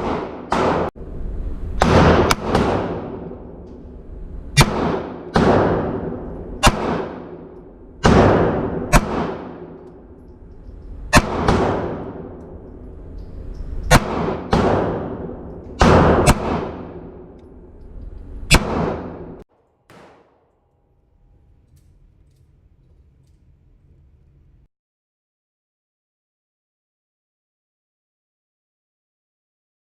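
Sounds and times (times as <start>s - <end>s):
handgun shots echoing: 0.0s - 0.9s, 4.6s - 12.7s, 13.8s - 17.6s, 18.5s - 23.6s
faint hum: 20.0s - 24.7s.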